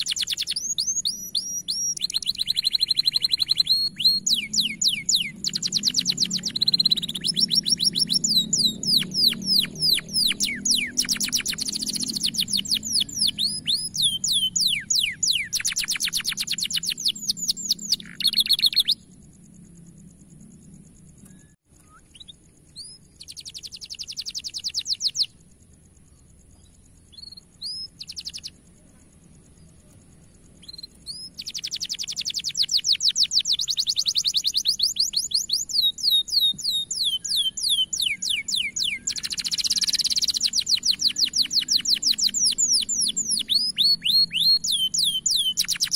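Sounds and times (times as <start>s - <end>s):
canary chirps: 0.0s - 19.3s, 20.7s - 45.9s
canary singing trills: 0.0s - 20.0s, 20.7s - 45.9s.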